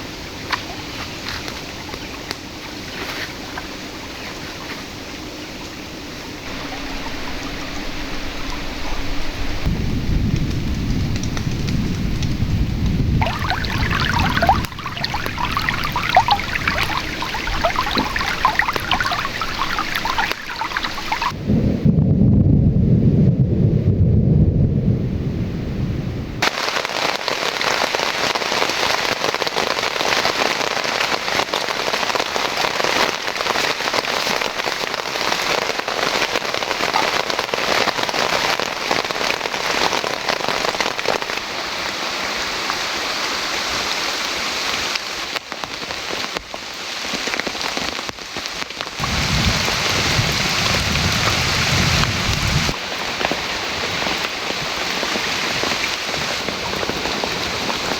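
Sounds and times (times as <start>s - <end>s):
rain falling: 0.0s - 21.4s, 26.4s - 57.9s
low rumble of thunder: 6.5s - 26.4s, 49.0s - 52.8s.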